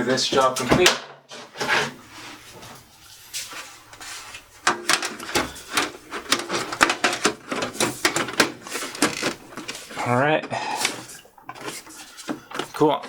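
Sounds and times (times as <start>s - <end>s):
metal panel clicks and clatters: 4.6s - 10.1s.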